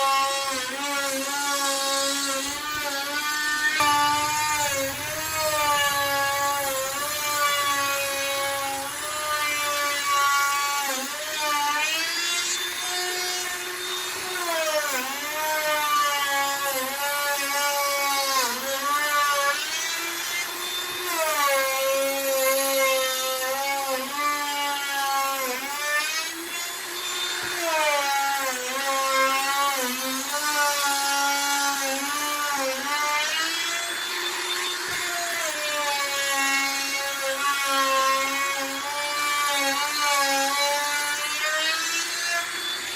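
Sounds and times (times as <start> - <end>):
electric router cutting wood: 0.0 - 42.9.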